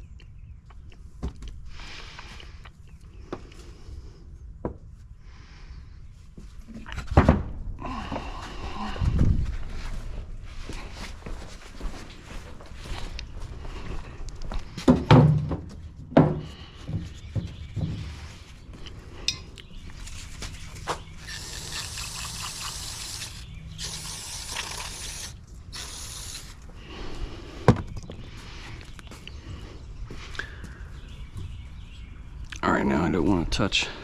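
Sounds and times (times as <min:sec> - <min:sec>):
hissing spray bursts: 0:21.2 - 0:26.6.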